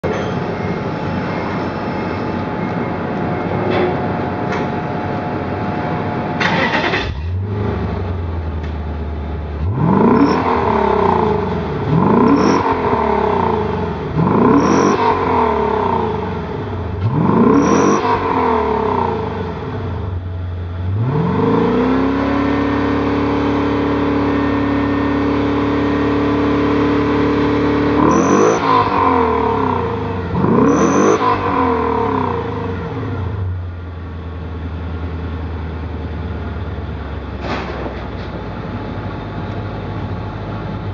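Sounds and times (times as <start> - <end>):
car engine revving: 5.4 - 34.1.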